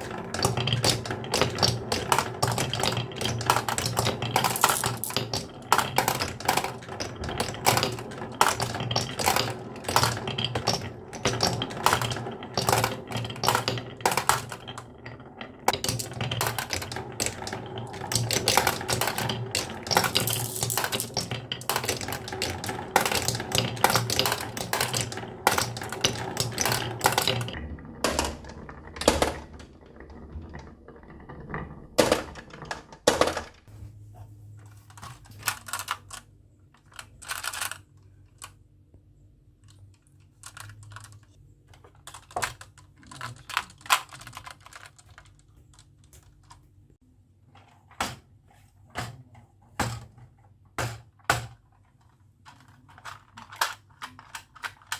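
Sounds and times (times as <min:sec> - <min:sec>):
marbles clattering on wood: 0:00.0 - 0:33.7, 0:42.0 - 0:46.6.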